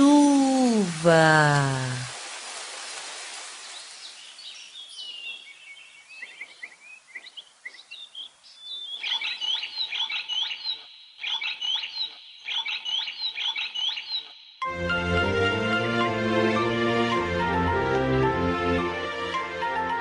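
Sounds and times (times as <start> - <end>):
rain hiss: 0.0 - 8.6
bird chirps: 3.7 - 14.6.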